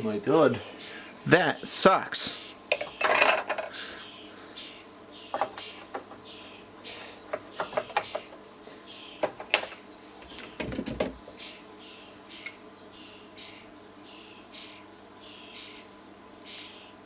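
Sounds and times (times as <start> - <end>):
bird chirping: 0.0 - 17.0
metal parts clicking and knocking: 2.7 - 3.7.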